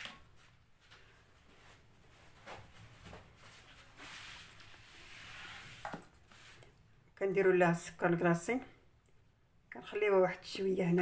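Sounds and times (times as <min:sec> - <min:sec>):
soft rubbing hiss: 0:01.4 - 0:06.8.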